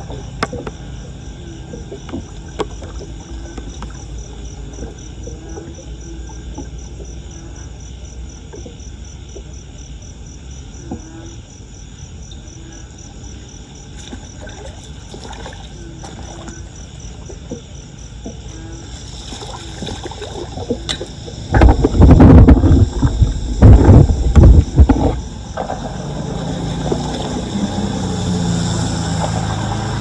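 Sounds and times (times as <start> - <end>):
knocks and splashes: 0.0 - 7.4, 13.8 - 30.0
floodwater sloshing and draining: 0.0 - 9.7, 12.7 - 30.0
high insect chirp: 0.0 - 30.0.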